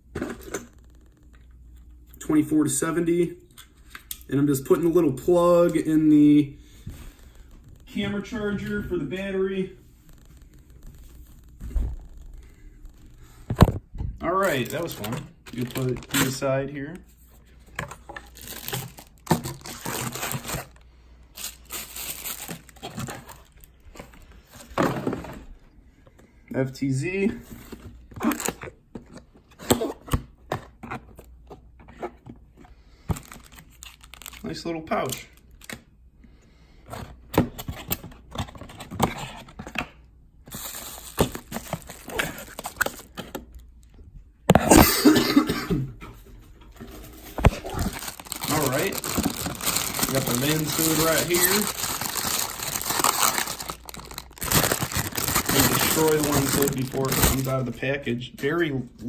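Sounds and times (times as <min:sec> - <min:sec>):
packaging crinkling and tearing: 0:14.3 - 0:16.4, 0:17.8 - 0:24.7, 0:27.6 - 0:30.2, 0:33.0 - 0:35.8, 0:40.5 - 0:43.9, 0:46.8 - 0:57.8.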